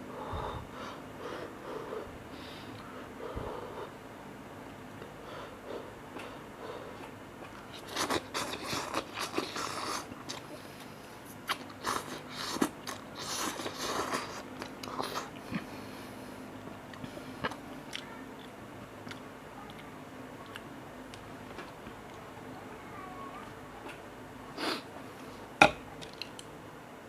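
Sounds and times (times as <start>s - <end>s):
person chewing noodles: 6.2s - 15.9s, 16.9s - 19.8s.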